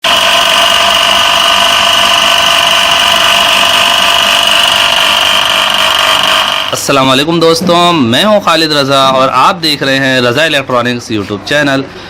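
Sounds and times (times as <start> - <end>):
electric motor driving water pump: 0.0 - 6.9
high-pitched whine: 0.0 - 7.3.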